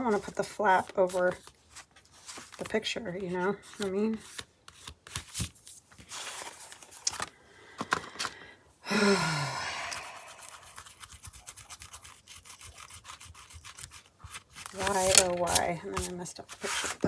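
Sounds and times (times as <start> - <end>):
woman groaning: 8.9 - 10.3
paper rustling and tapping: 14.2 - 17.0.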